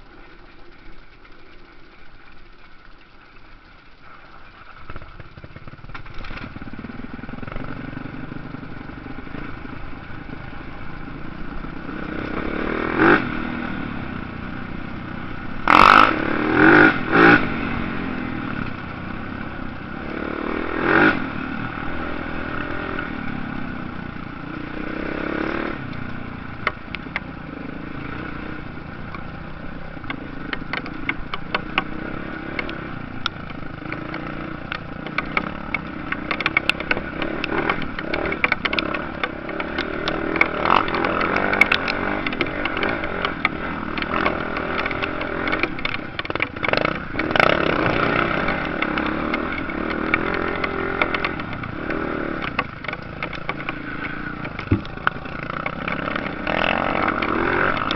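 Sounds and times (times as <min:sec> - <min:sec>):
sharp clicks and crackles: 0:00.0 - 0:13.4, 0:28.2 - 0:57.9
motocross bike engines revving: 0:00.0 - 0:57.9.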